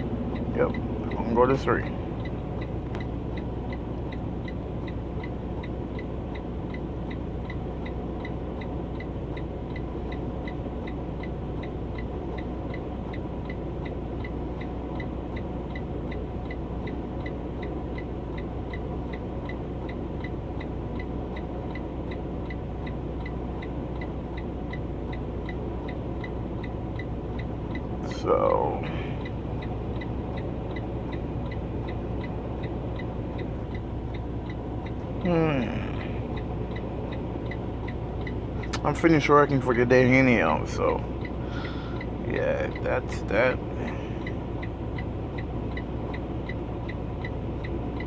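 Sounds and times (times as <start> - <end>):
truck engine idling: 0.0 - 48.0
high ticking: 26.2 - 47.8.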